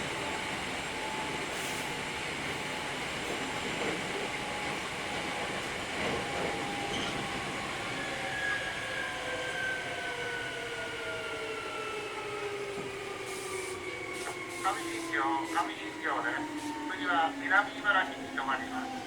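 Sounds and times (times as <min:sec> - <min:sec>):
train wheels rumbling on rails: 0:00.0 - 0:08.3.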